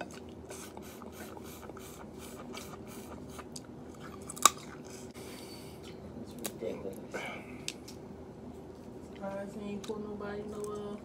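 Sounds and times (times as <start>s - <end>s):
person chewing with wet smacks: 0.0s - 8.0s.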